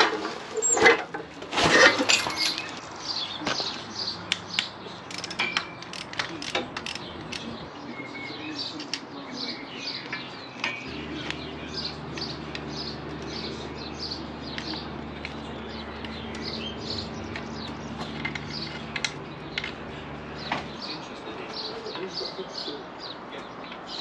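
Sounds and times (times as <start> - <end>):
birds chirping: 2.1 - 24.0
metallic clicks of hand tools: 4.3 - 7.5
steady low hum: 10.9 - 21.4.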